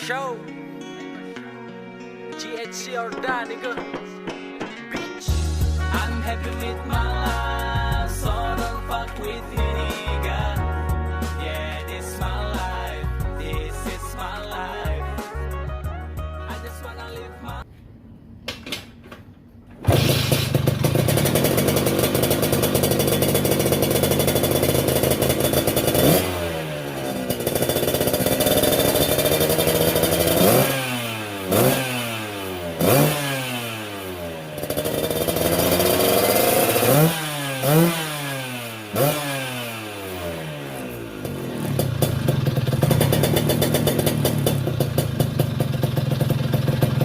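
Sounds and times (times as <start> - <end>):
scooter engine revving: 19.8 - 47.0.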